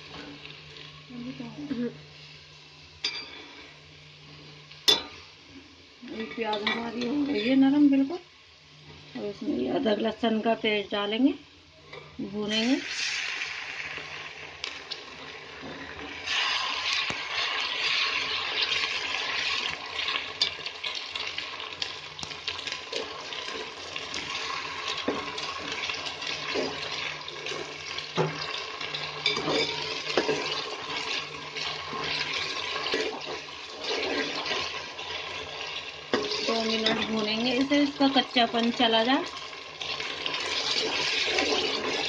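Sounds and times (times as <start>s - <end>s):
onions sizzling in hot oil: 0.0s - 42.0s.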